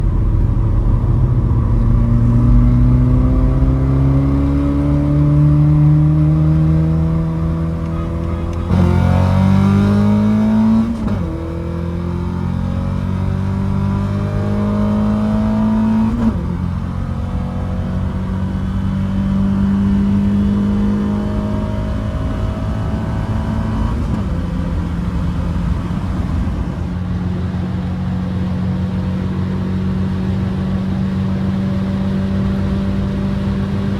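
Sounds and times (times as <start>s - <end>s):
car engine revving through gears: 0.0s - 33.9s.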